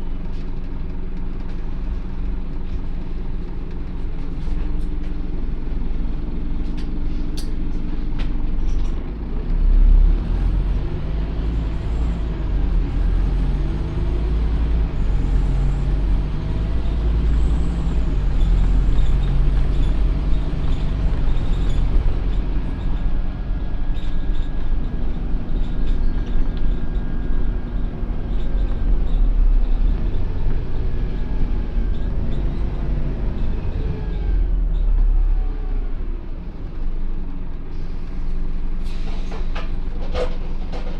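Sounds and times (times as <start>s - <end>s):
diesel bus engine running: 0.0s - 40.9s.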